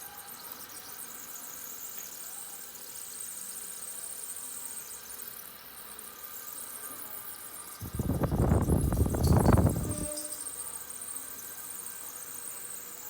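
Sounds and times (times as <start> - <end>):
electric fan with faint squeal: 0.0 - 13.0.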